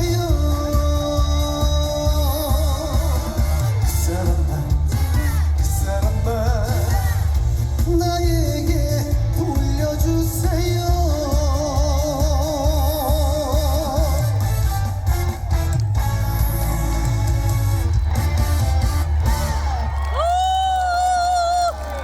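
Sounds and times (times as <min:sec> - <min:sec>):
man singing with vibrato: 0:00.0 - 0:15.0
band with heavy bass: 0:00.0 - 0:22.0.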